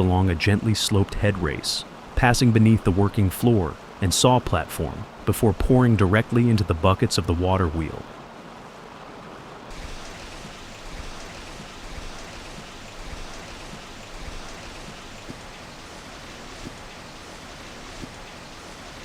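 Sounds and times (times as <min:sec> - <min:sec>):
water rushing into water wheel: 0:09.7 - 0:19.0.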